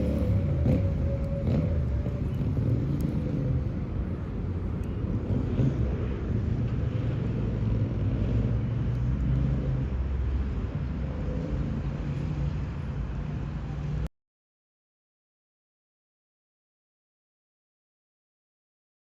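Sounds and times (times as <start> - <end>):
road traffic rumble: 0.0 - 14.1.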